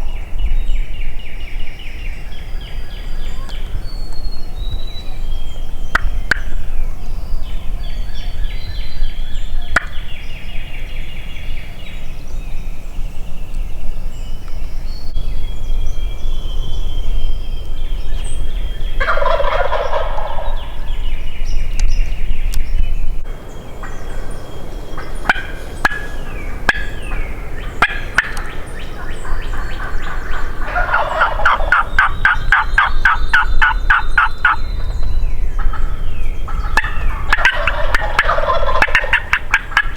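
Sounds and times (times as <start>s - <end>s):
turkeys gobbling: 18.8s - 21.0s, 24.9s - 34.6s, 35.6s - 35.9s, 36.5s - 39.9s.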